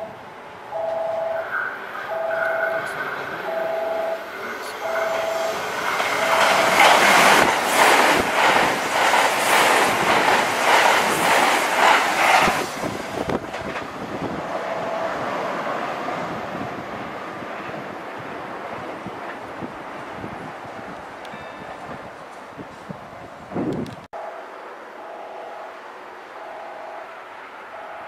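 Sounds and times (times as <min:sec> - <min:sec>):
electric train passing at speed: 0:00.0 - 0:28.0
wheels clattering over rail joints: 0:04.4 - 0:14.6.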